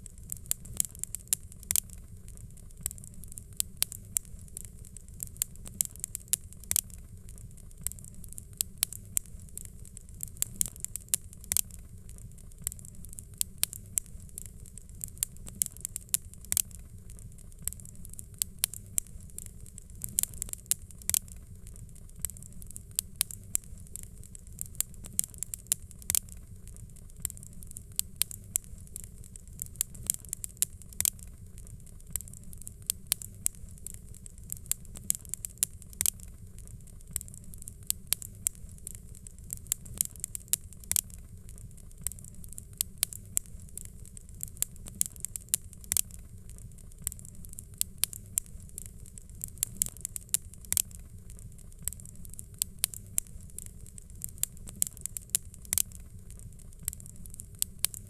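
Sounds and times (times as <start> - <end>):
fireplace fire crackling: 0.0 - 58.0.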